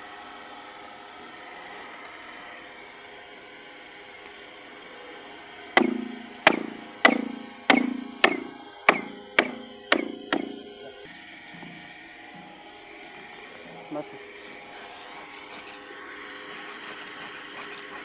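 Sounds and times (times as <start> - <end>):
hammer blows ringing: 5.8 - 10.7.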